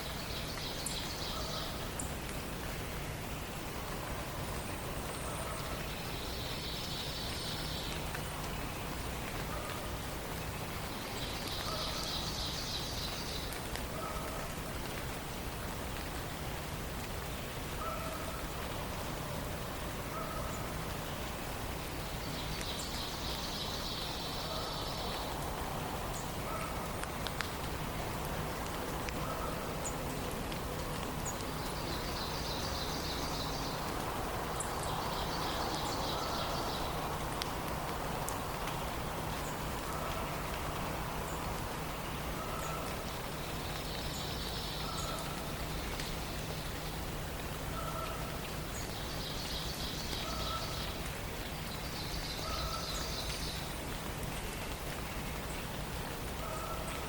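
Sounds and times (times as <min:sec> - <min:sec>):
background hiss: 0:00.0 - 0:57.0.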